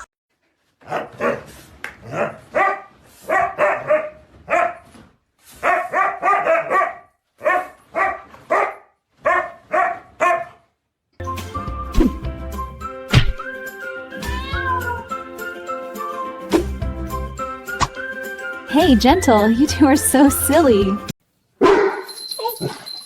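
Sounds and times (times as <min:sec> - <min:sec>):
dog barking: 0:00.8 - 0:04.9, 0:05.6 - 0:10.7, 0:21.6 - 0:22.8.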